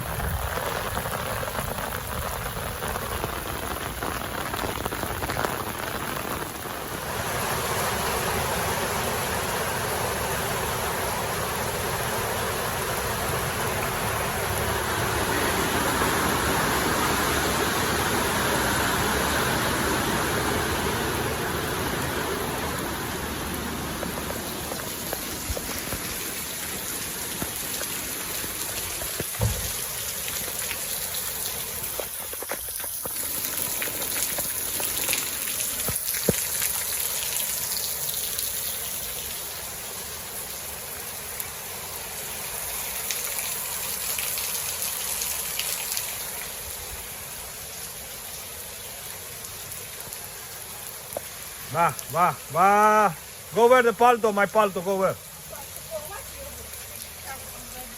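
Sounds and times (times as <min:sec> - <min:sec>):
rain falling: 0:00.0 - 0:57.9
short knock: 0:29.4 - 0:29.8.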